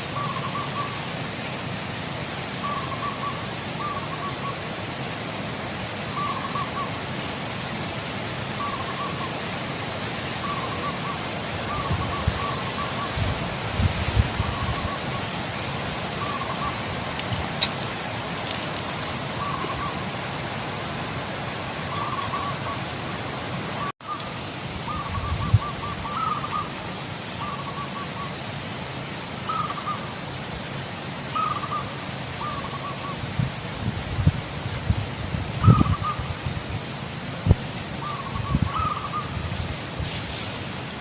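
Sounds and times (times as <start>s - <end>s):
steady outdoor hiss: 0.0s - 41.0s
doves cooing: 38.0s - 39.4s.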